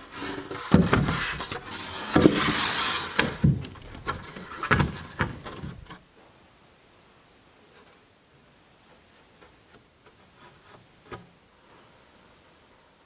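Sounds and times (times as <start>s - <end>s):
wood scraping slide: 0.0s - 6.0s
knocks of boards and tools: 0.7s - 1.4s, 3.2s - 6.0s.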